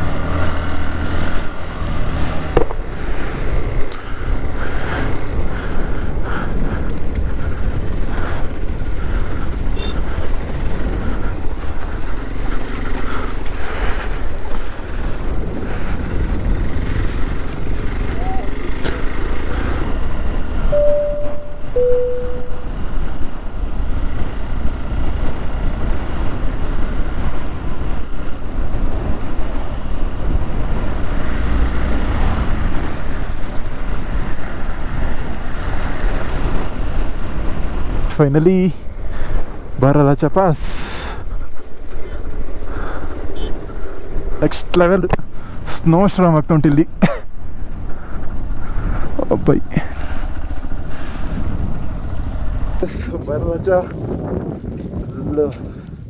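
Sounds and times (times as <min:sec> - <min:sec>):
wind rumbling on microphone: 0:00.0 - 0:20.8, 0:22.6 - 0:38.1, 0:47.3 - 0:56.0
motorcycle noise: 0:00.0 - 0:45.8, 0:46.8 - 0:56.0
motorcycle engine running: 0:05.3 - 0:13.5
brief steady tone: 0:20.7 - 0:22.8.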